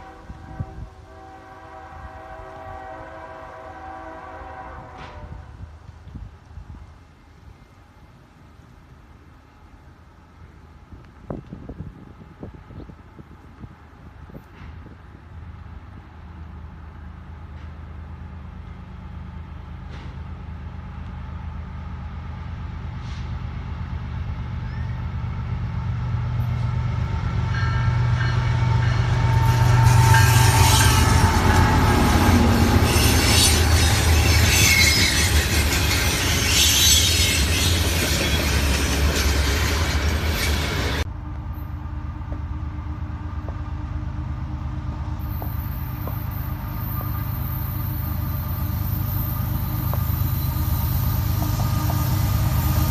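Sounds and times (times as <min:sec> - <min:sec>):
train wheel and rail noise: 0:00.0 - 0:52.9
locomotive engine drone: 0:13.3 - 0:52.9.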